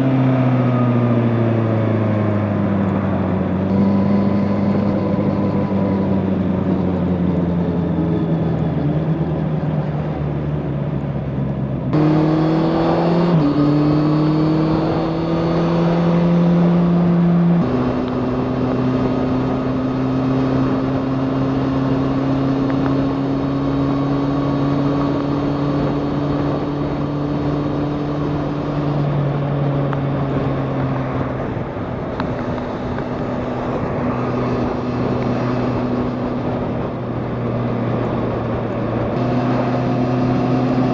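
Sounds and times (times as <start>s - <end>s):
motorcycle engine revving: 3.4s - 9.3s, 11.9s - 40.9s
wind rushing over microphone: 11.9s - 40.9s.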